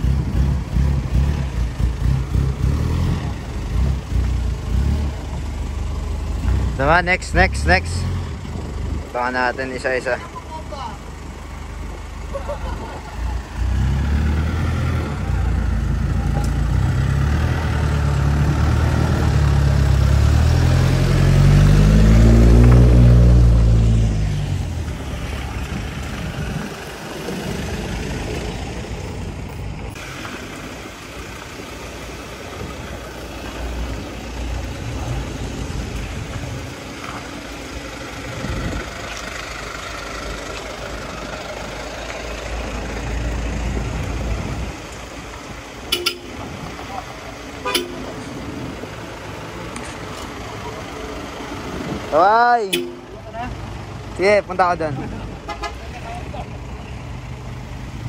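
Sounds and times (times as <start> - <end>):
vehicle engine driving past: 12.4 - 28.9.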